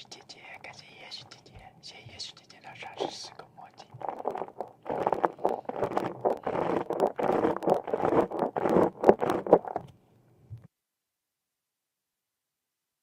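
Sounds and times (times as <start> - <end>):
objects scraping and rustling: 3.9 - 9.9.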